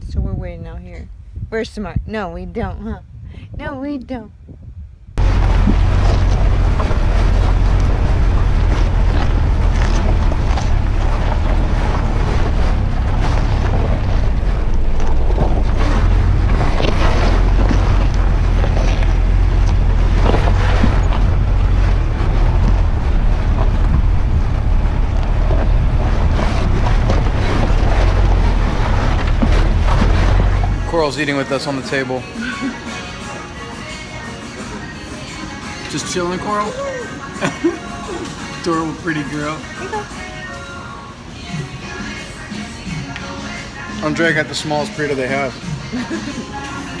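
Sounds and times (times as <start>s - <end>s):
wind buffeting microphone: 0.0s - 31.3s.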